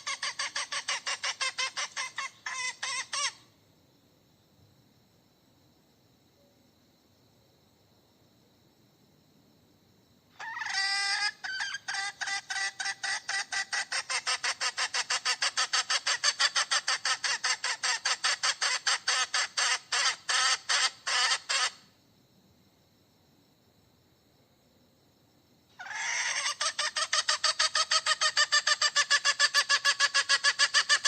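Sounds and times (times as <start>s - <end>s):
hen cackling: 0.0s - 3.4s, 10.4s - 21.8s, 25.8s - 31.0s.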